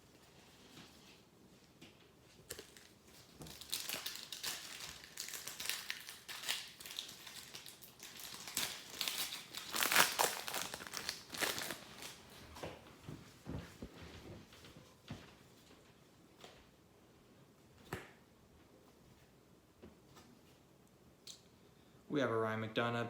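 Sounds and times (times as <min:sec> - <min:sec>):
foil wrapper crinkling: 0:02.4 - 0:12.4.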